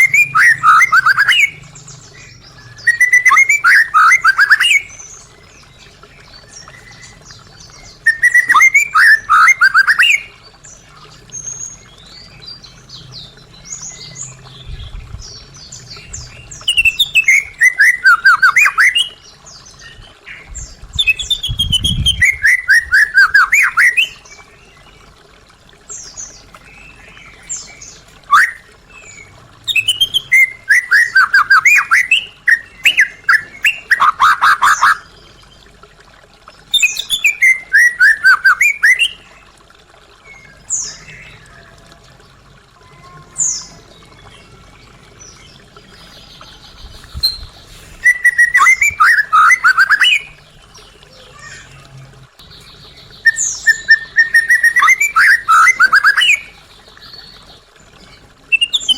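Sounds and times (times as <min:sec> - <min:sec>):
songbird singing falling notes: 0:46.3 - 0:50.9.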